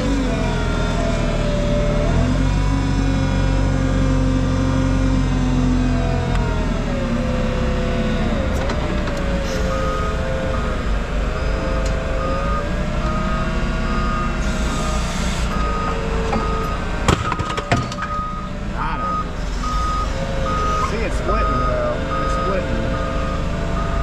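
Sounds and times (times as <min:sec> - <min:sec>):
heavy equipment diesel engine: 0:00.0 - 0:24.0
reversing alarm beeping: 0:09.4 - 0:24.0.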